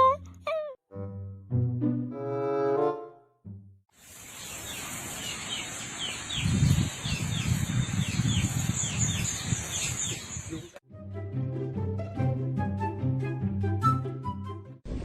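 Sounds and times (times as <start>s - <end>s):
birds chirping: 4.1s - 10.8s.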